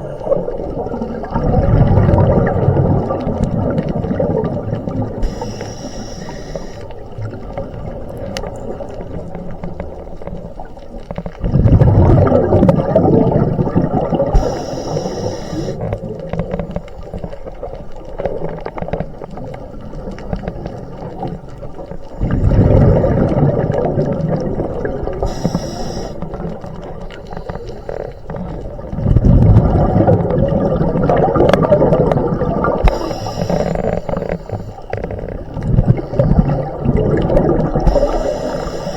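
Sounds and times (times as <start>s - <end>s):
underwater bubbles rumbling: 0.0s - 38.9s
regulator hiss: 5.2s - 7.0s, 14.3s - 15.9s, 25.2s - 26.3s, 32.8s - 34.9s, 37.8s - 38.9s.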